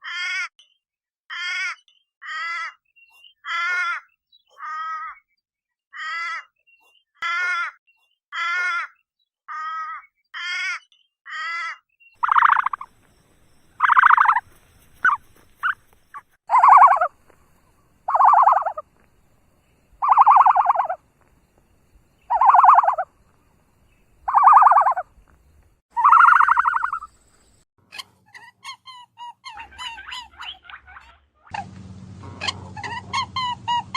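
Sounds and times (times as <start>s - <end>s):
harsh animal calls: 11.4s - 12.9s, 13.8s - 15.8s, 16.5s - 17.1s, 18.0s - 18.8s, 20.0s - 21.0s, 22.3s - 23.1s, 24.3s - 25.1s, 26.0s - 27.1s
short wavering animal calls: 12.2s - 12.9s, 13.8s - 15.8s, 16.5s - 17.1s, 18.0s - 18.8s, 20.0s - 21.0s, 22.3s - 23.1s, 24.3s - 25.0s, 26.0s - 27.1s.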